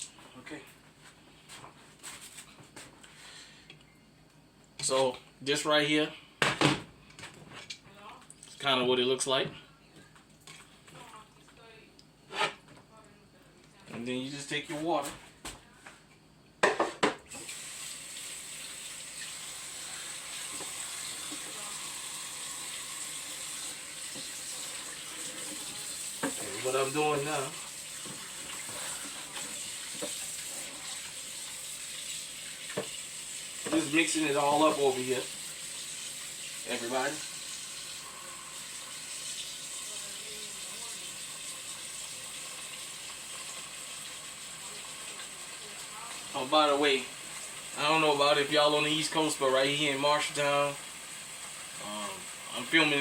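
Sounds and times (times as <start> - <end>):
kitchen tap running: 17.3 - 53.0
tap running into a sink: 20.3 - 21.7, 22.7 - 31.1, 32.0 - 34.0.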